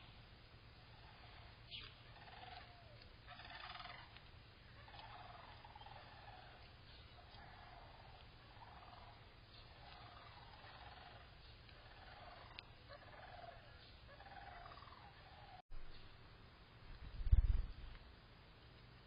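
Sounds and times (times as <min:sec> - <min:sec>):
faint animal calls: 0:00.8 - 0:15.6.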